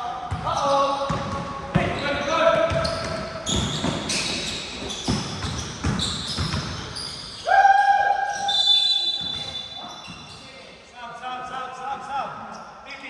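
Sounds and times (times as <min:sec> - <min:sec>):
basketball bouncing: 0:00.2 - 0:07.2, 0:09.2 - 0:10.2.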